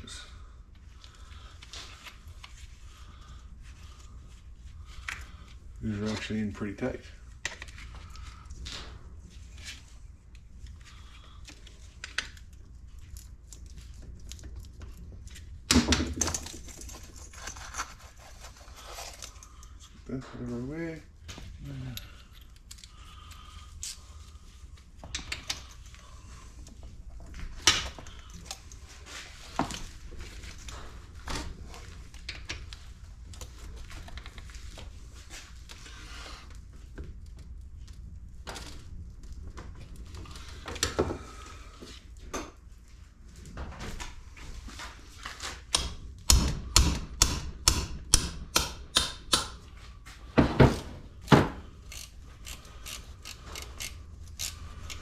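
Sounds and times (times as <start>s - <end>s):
steady low hum: 0.0s - 55.0s
ratchet and hand tools clicking: 51.8s - 55.0s.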